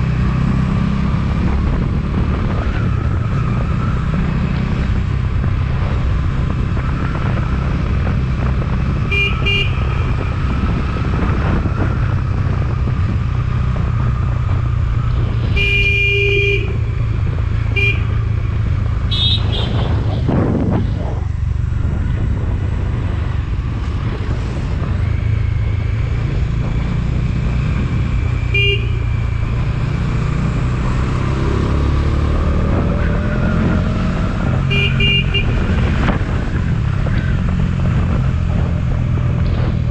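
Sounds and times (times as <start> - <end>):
motorcycle running: 0.0 - 39.9
wind and road rumble: 0.0 - 39.9
horn beeping: 9.0 - 10.1, 15.4 - 16.9, 28.5 - 29.2, 34.7 - 35.7.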